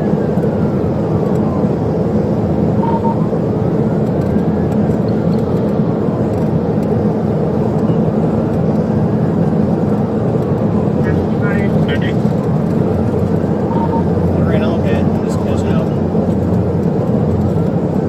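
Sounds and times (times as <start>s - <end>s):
faint police siren wailing: 0.0s - 4.8s
car engine and road noise: 0.0s - 18.0s
short beep: 2.8s - 3.3s, 13.7s - 14.1s.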